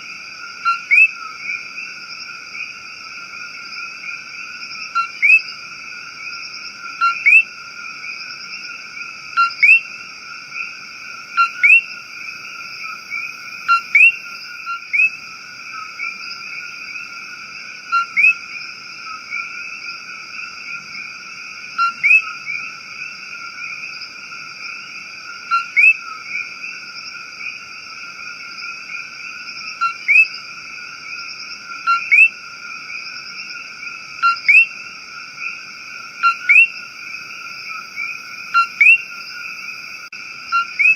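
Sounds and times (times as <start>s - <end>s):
frog chorus: 0.0s - 40.9s
short rising frog call: 36.2s - 40.9s.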